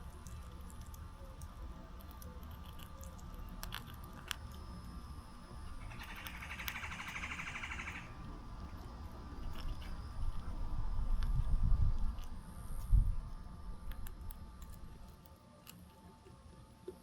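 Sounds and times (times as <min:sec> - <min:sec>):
faint low rumble: 0:00.0 - 0:15.2
bird trilling: 0:05.8 - 0:08.2.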